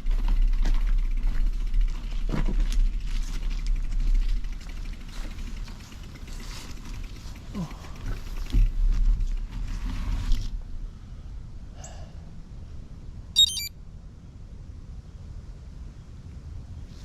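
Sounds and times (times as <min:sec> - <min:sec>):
wind and tyres rumbling: 0:00.0 - 0:11.3
short high chirp: 0:13.4 - 0:13.7.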